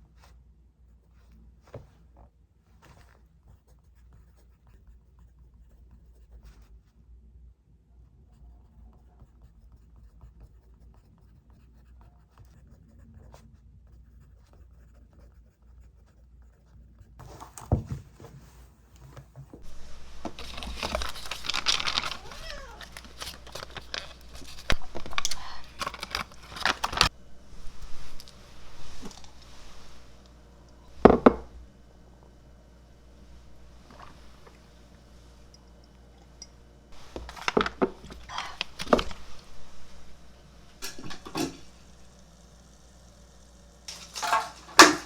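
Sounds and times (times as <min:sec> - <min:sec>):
rustling and crinkling handling noise: 0:17.2 - 0:45.0.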